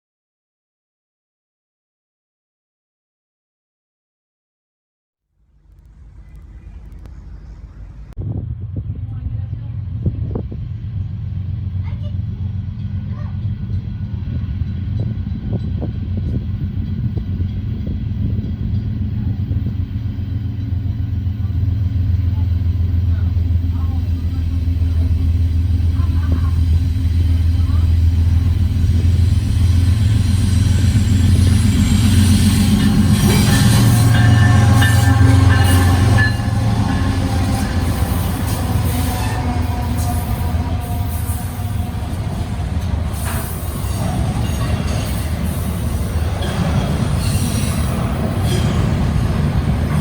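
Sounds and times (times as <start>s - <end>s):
diesel locomotive rumble: 5.4s - 50.0s
wheel squeals: 29.9s - 49.2s.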